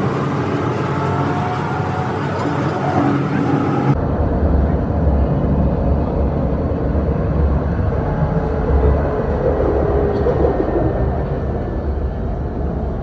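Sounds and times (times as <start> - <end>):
faint whine: 0.0 - 4.0
tram running: 0.0 - 4.0, 7.7 - 13.0.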